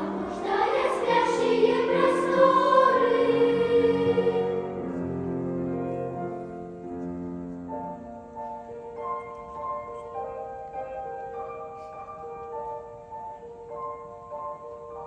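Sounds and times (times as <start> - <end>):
children's choir singing: 0.0 - 5.0.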